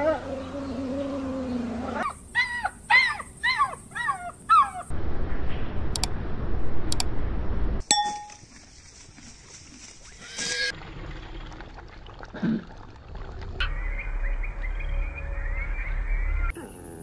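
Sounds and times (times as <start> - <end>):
low rumbling noise: 12.9 - 16.6.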